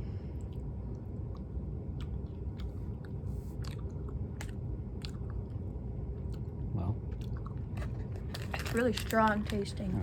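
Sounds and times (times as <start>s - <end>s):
steady low hum: 0.0s - 10.0s
mouth clicks and smacks chewing: 0.4s - 5.6s.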